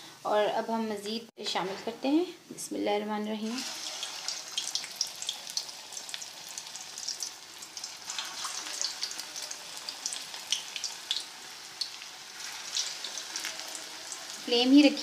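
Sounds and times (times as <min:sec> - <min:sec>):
food frying in hot oil: 0:03.3 - 0:15.0.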